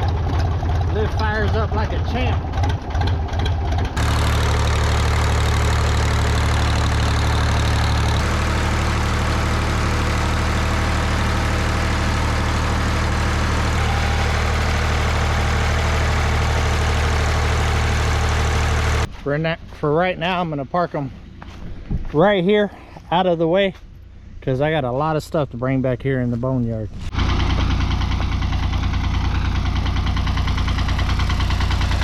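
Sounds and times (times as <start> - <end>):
tractor engine running: 0.0 - 19.2, 27.0 - 32.0.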